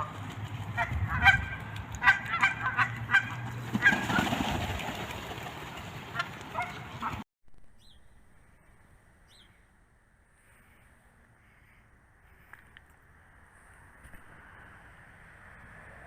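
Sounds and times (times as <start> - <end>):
birds calling rapidly: 0.0 - 7.2.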